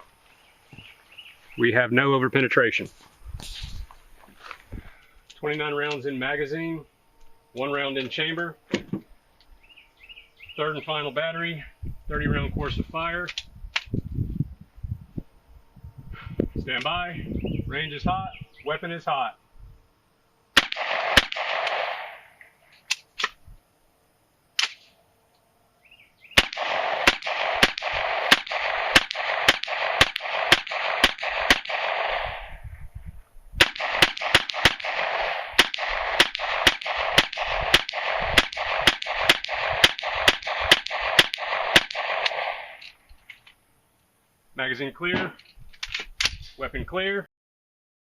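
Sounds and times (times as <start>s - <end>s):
rapid gunfire: 20.6s - 22.2s, 26.4s - 32.6s, 33.6s - 42.8s.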